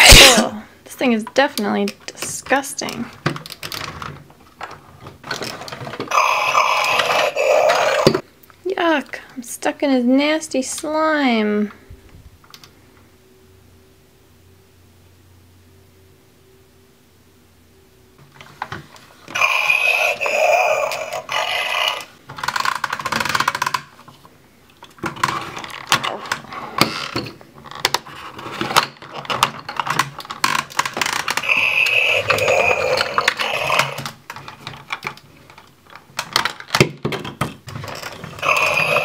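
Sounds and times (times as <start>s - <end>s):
plastic toy truck parts clicking: 21.9s - 24.1s, 28.7s - 39.0s.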